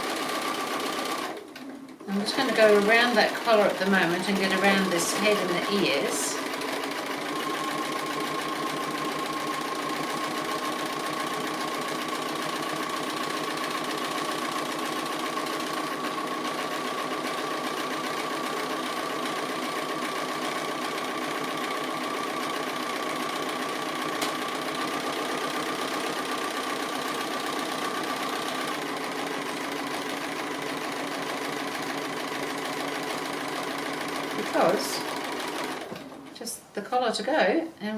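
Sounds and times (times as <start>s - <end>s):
sewing machine motor whine: 0.0s - 36.1s.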